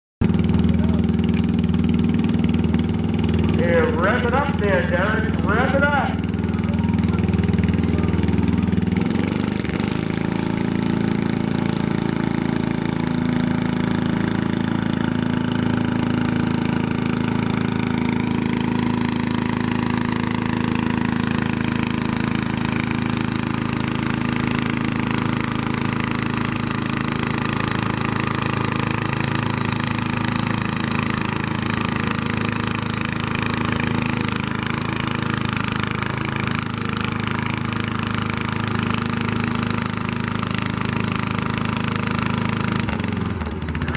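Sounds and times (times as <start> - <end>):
tractor engine running: 0.2 - 43.9.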